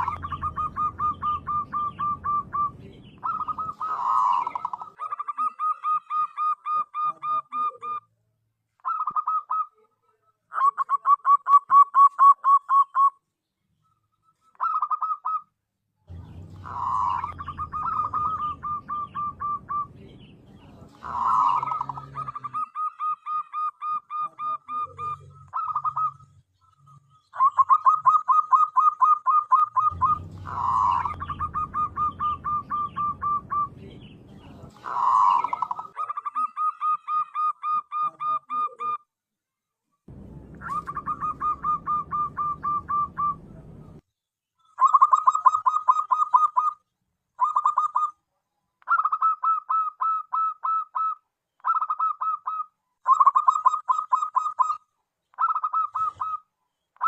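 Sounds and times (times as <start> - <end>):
dove cooing: 0.0 - 8.0, 8.8 - 9.9, 14.5 - 15.5, 16.1 - 39.0, 40.1 - 44.0, 47.4 - 48.1, 48.9 - 54.8, 55.4 - 56.5
low rumble: 16.1 - 21.2, 29.9 - 34.9, 40.1 - 44.0.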